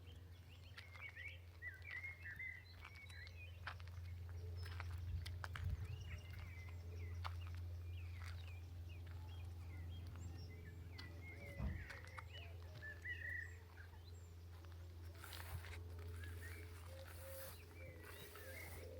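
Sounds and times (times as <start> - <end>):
songbirds chirping and trilling: 0.0 - 18.9
steady low rumble: 0.0 - 18.9
dull thump: 11.6 - 12.1.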